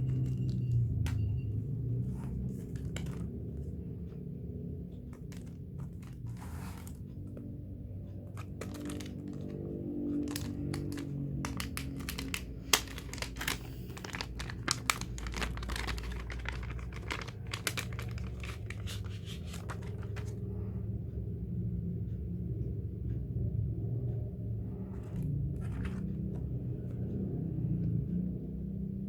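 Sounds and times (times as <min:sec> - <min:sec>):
packaging crinkling and tearing: 0:08.3 - 0:20.3.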